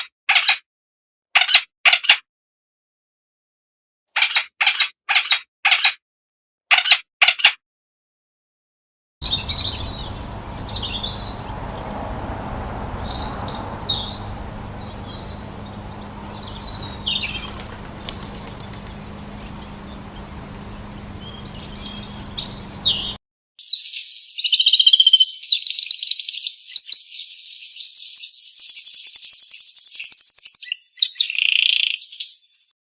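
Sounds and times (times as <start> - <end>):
bird song with rapid trills: 9.2 - 32.7
high bird chirps: 9.2 - 32.7.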